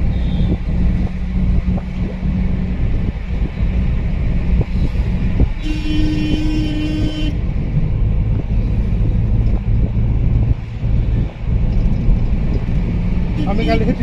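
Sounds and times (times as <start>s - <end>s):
road vehicle rumble: 0.0s - 14.0s
vehicle horn: 5.6s - 7.4s.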